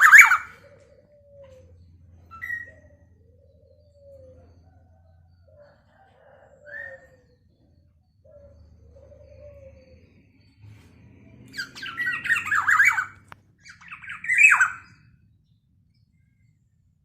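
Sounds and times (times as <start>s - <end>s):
bird squawking calls: 0.0s - 4.4s, 11.5s - 15.0s.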